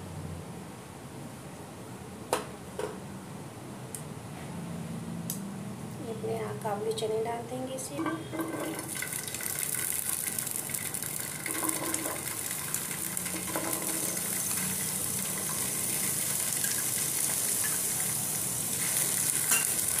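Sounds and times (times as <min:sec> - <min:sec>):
chickpeas sizzling in hot oil: 0:08.0 - 0:20.0.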